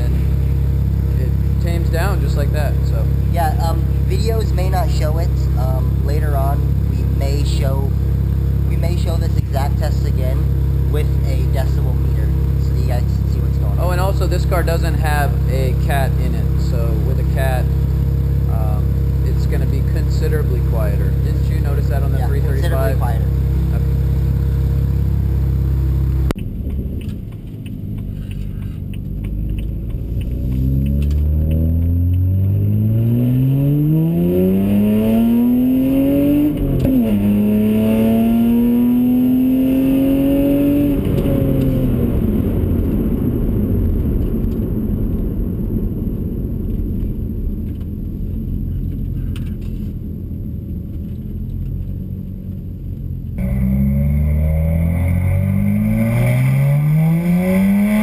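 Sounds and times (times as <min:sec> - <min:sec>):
car engine accelerating hard: 0:00.0 - 0:58.0
car passing: 0:26.4 - 0:49.9.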